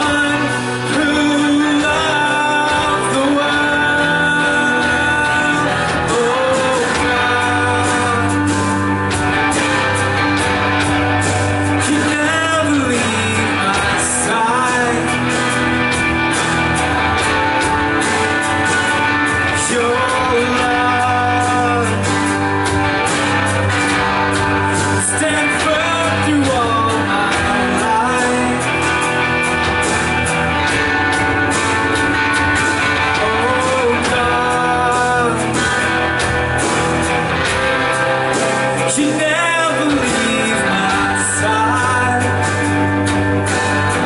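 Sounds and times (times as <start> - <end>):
people singing: 0.0 - 8.8, 33.0 - 35.9, 38.9 - 42.7
guitar: 0.0 - 44.0
live rock band playing: 0.0 - 44.0.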